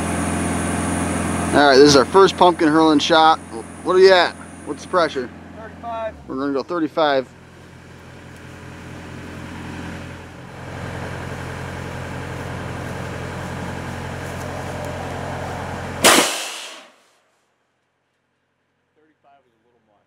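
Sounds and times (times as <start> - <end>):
air compressor engine running: 0.0 - 16.9
rushing air hiss: 16.0 - 16.9
compressed air cannon blast: 16.0 - 17.0.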